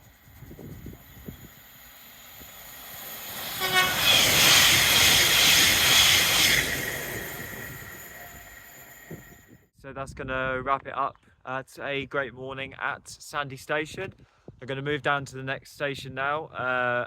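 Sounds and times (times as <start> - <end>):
train rushing past: 0.0 - 9.6
train horn note: 3.4 - 4.6.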